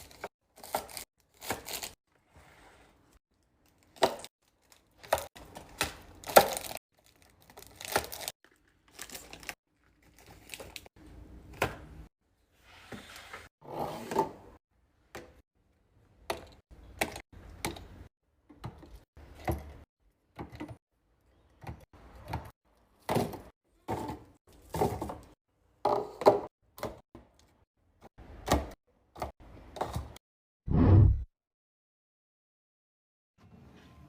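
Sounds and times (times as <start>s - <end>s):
package rustles: 6.4s - 10.9s.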